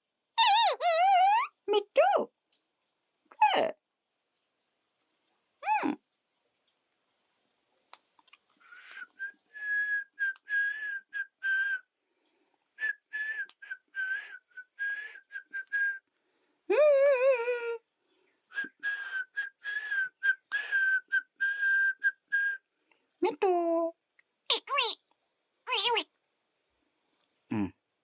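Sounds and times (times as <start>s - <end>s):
whistling short notes: 8.6s - 11.9s, 12.8s - 16.1s, 18.5s - 22.6s.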